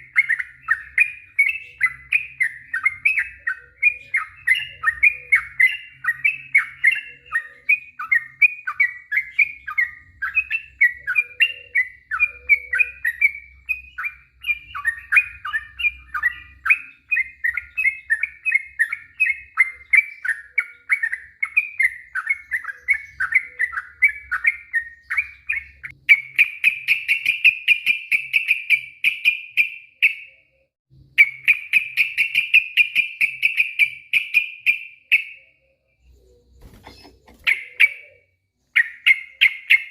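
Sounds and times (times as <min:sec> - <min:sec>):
bird chirping song: 0:00.0 - 0:39.9
fast rolling bird trill: 0:36.5 - 0:38.2.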